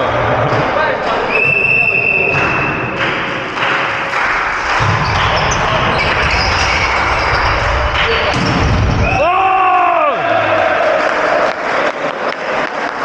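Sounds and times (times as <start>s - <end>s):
hall noise: 0.0s - 11.6s
volleyball being hit and bouncing: 2.2s - 9.1s
sneaker squeaks on floor: 5.0s - 7.5s.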